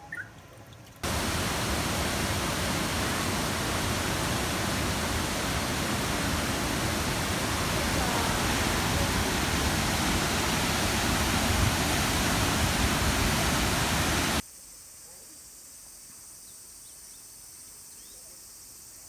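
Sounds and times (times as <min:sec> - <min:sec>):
waterfall roaring: 0:01.0 - 0:14.4.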